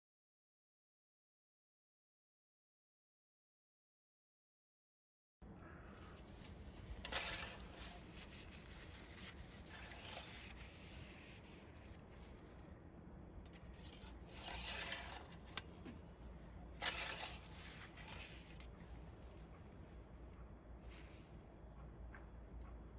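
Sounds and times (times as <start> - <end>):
faint low hum: 5.4 - 22.9
short scraping sounds: 5.9 - 12.7, 13.5 - 19.6, 20.8 - 21.4.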